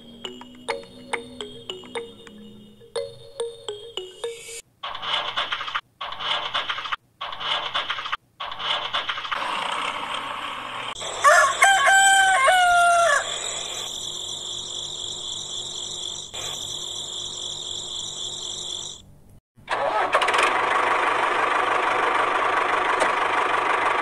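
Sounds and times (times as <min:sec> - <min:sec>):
rooster crowing: 0:11.0 - 0:13.8.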